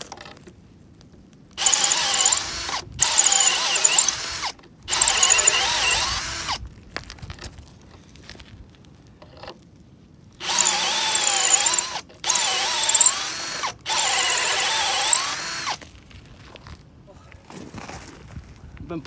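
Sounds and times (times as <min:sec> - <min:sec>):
power drill boring into wood: 0:01.6 - 0:06.6, 0:10.4 - 0:15.9.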